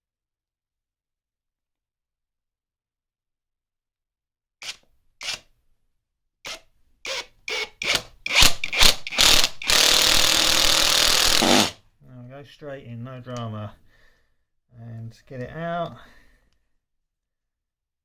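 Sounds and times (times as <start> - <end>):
impact driver driving screw into wood: 4.6 - 5.5, 6.4 - 11.8.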